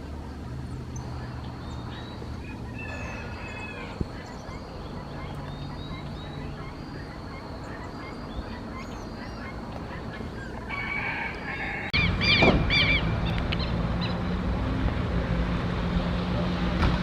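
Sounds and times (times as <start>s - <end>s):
faint bird chirps: 0.9s - 10.8s
loud honking bird calls: 1.0s - 14.3s.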